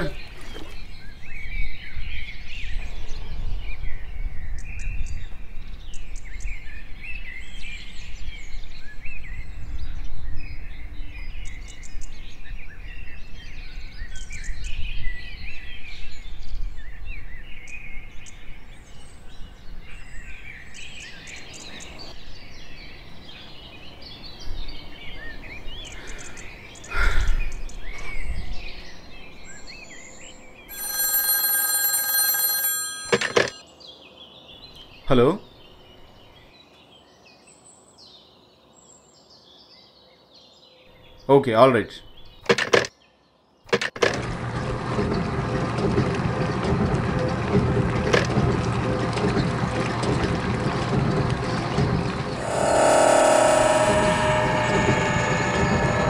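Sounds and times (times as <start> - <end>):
rush of noise: 52.3 - 56.0.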